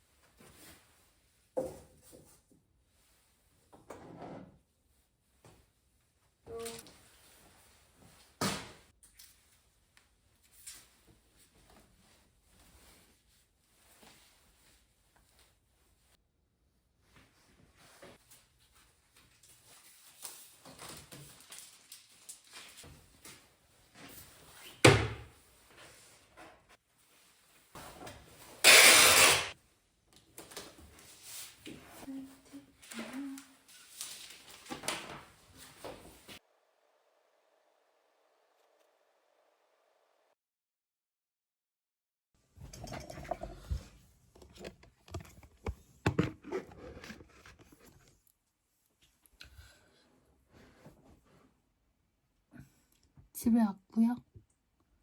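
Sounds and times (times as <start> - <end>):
handling rustling and scraping: 42.6 - 48.3.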